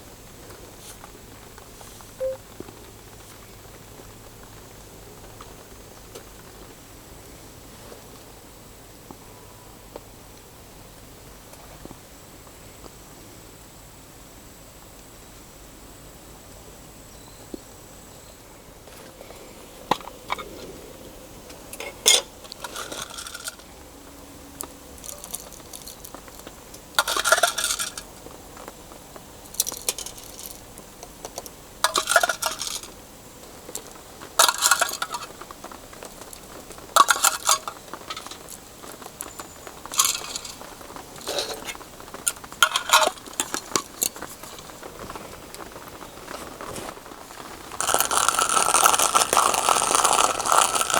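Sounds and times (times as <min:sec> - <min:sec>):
metal utensils clinking on cookware: 0:21.8 - 0:23.7, 0:25.0 - 0:26.1, 0:27.0 - 0:28.0, 0:31.9 - 0:32.9, 0:34.4 - 0:35.4, 0:37.0 - 0:38.6, 0:39.9 - 0:44.8.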